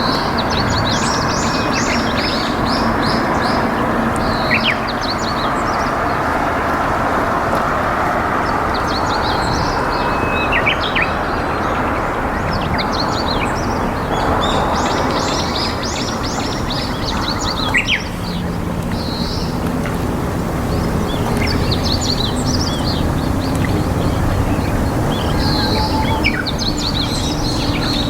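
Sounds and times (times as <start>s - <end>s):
small birds chirping: 0.0s - 6.5s, 20.6s - 28.0s
river water flowing: 0.0s - 28.0s.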